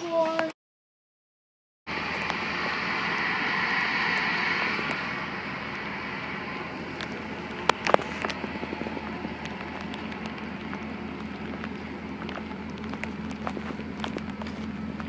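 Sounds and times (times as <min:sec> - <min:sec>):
ship machinery humming: 0:01.9 - 0:15.0.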